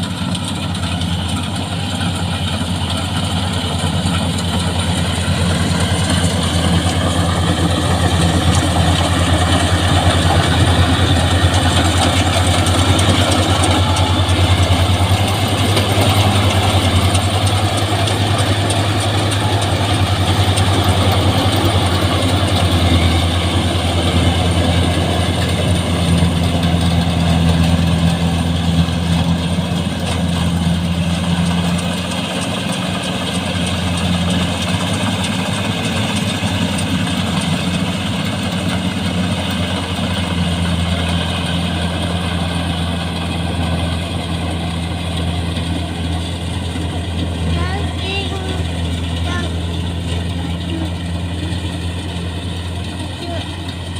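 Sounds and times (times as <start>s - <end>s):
combine harvester engine hum: 0.0s - 53.9s.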